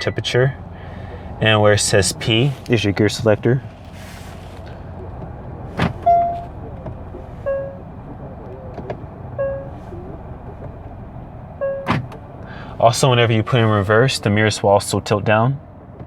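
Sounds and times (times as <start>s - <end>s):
low cabin hum: 0.0s - 16.0s
gear selector clicks: 1.1s - 12.5s
warning chime beeps: 6.0s - 8.7s, 9.4s - 10.5s, 11.6s - 11.9s.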